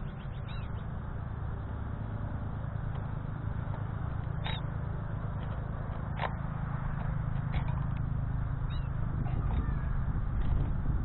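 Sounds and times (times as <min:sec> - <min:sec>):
high bird chirps: 0:00.0 - 0:00.8, 0:08.7 - 0:09.0
steady low rumble: 0:00.0 - 0:11.0.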